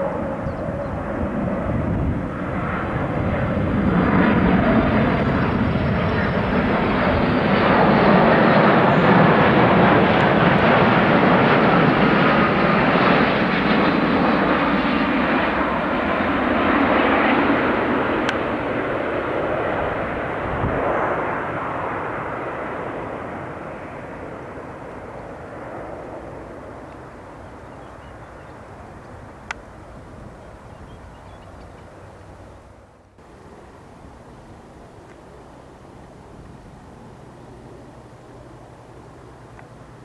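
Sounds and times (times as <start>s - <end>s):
aircraft engine noise: 0.0s - 40.0s.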